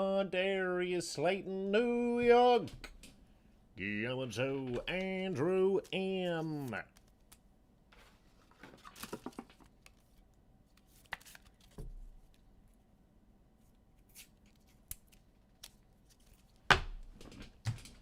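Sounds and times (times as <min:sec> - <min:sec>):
card packs rustling: 0:08.1 - 0:10.2.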